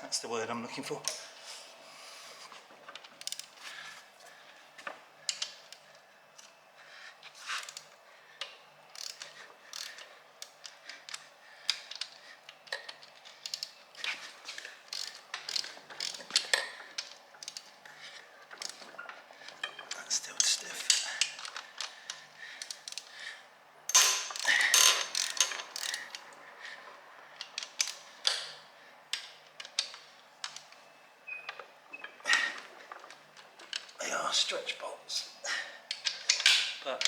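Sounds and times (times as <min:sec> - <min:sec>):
ratchet wrench clicking: 0:08.9 - 0:13.8, 0:14.9 - 0:17.7, 0:18.6 - 0:18.8, 0:22.6 - 0:23.1, 0:23.9 - 0:26.2.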